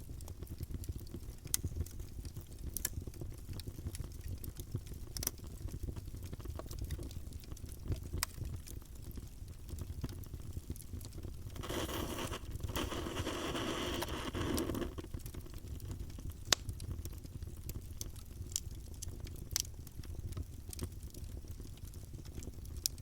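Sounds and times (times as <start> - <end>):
campfire flames rumbling: 0.0 - 23.0
fire crackling and popping: 0.0 - 23.0
hissing: 11.6 - 15.0.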